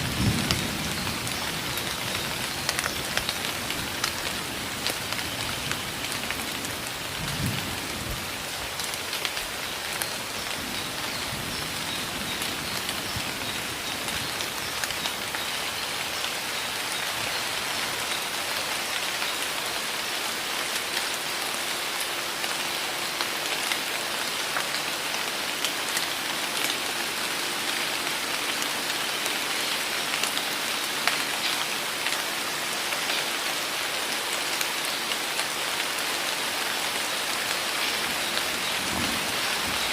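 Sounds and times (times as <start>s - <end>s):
heavy rain pouring: 0.0s - 39.9s
raindrops ticking: 0.2s - 7.5s.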